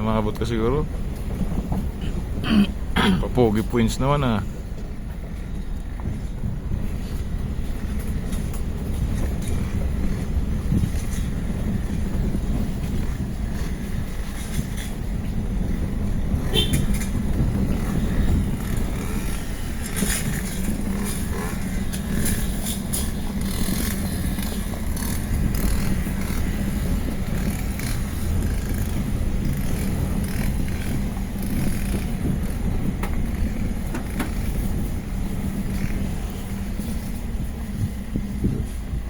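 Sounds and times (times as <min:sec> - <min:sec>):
wind noise on microphone: 0:00.0 - 0:39.0
motor running with low rumble: 0:04.5 - 0:39.0.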